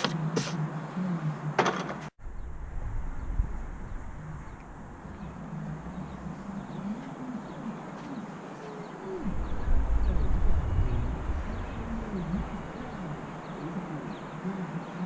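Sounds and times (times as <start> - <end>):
low rumble: 2.2 - 7.7, 9.2 - 14.5
small birds chirping: 3.2 - 15.0
pigeon cooing: 5.1 - 15.0.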